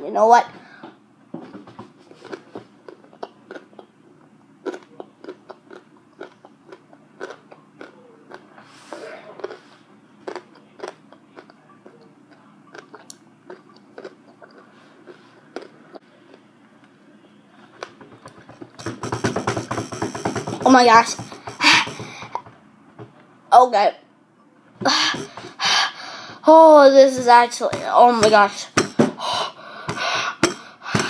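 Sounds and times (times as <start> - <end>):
person chewing with wet crunches: 2.1 - 16.5.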